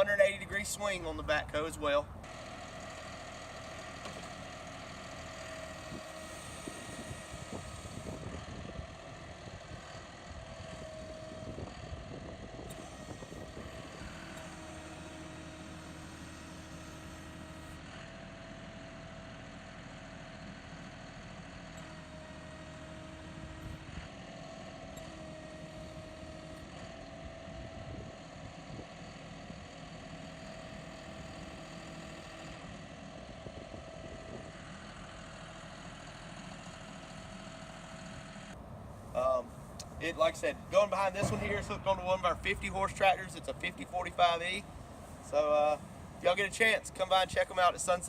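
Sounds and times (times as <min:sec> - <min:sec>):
tractor diesel engine running: 0:00.0 - 0:48.0.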